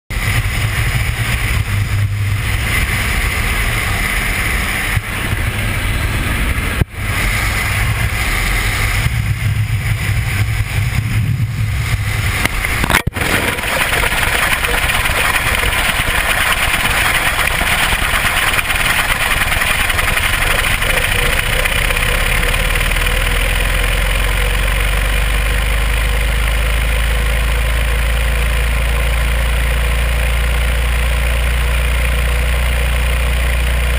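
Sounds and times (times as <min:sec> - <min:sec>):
aircraft engine noise: 0:00.1 - 0:33.9
deep rumble: 0:00.1 - 0:33.9
rush of air: 0:00.2 - 0:23.8.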